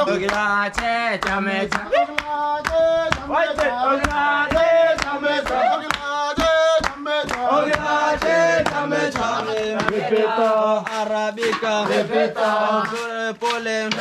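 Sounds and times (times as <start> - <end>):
men chanting call-and-response: 0.0 - 14.0
pestle thudding into mortar: 6.8 - 14.0.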